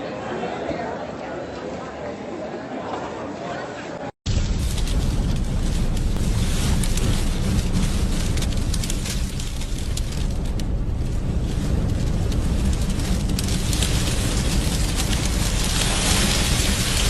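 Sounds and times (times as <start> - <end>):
strong wind buffeting microphone: 4.3 - 17.0.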